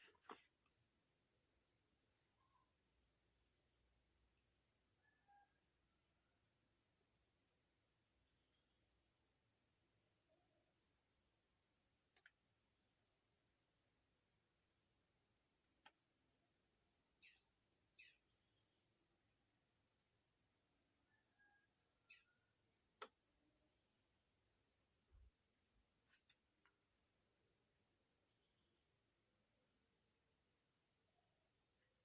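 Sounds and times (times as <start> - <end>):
high-pitched insect chorus: 0.0 - 32.0
faint ticks: 12.1 - 12.4.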